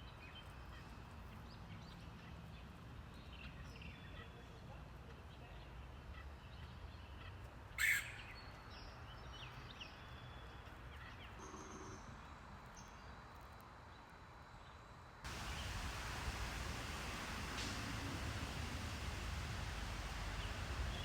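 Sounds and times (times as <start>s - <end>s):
outdoor background noise: 0.0s - 21.0s
woodpecker harsh call: 7.8s - 8.2s.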